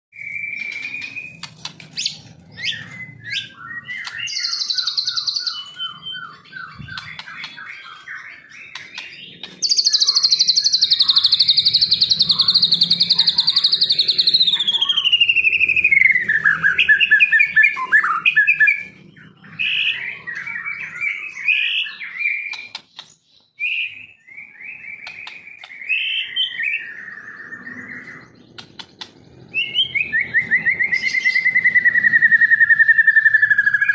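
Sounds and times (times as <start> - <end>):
bird singing whistled song: 0.2 - 33.9
long descending bird trill: 2.5 - 18.7.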